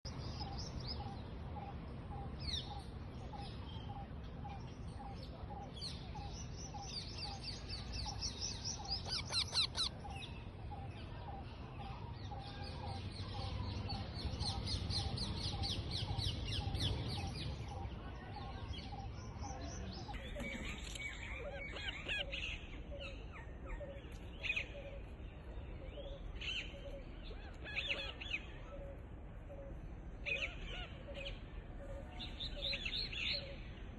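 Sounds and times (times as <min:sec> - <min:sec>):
parrots chirping: 0:09.0 - 0:09.9.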